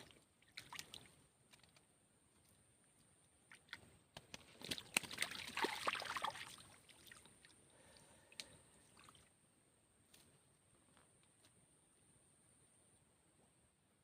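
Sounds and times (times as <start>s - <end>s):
water splashing and sloshing: 0.0s - 9.3s.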